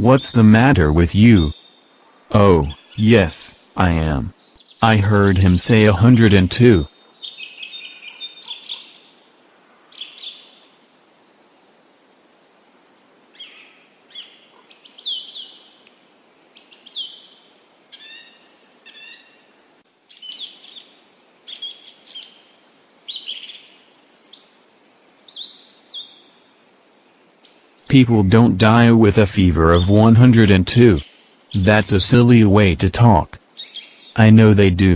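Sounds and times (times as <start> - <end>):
birds chirping: 0.0 - 9.2, 27.4 - 34.9.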